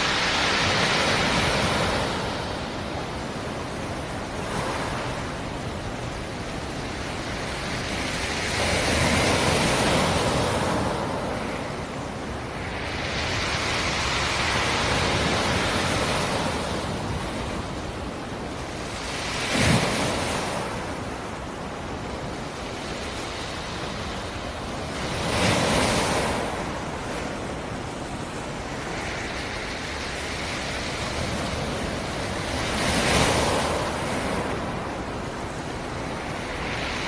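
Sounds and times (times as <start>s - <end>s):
waves breaking: 0.0s - 37.0s.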